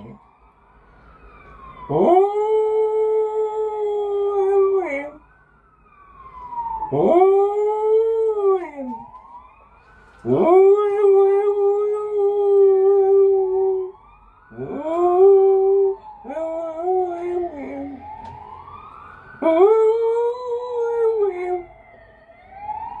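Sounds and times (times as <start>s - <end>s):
dog howling: 1.8s - 5.2s, 6.8s - 9.1s, 10.2s - 18.4s, 19.4s - 21.7s.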